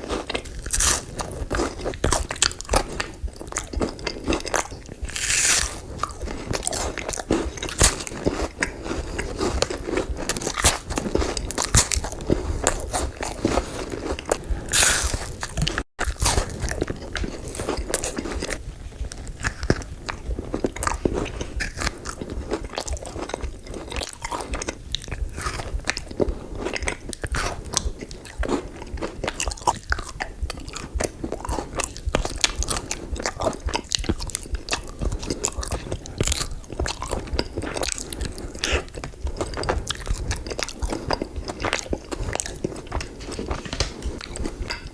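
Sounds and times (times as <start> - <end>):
crunchy bites and chewing: 0.0 - 44.9.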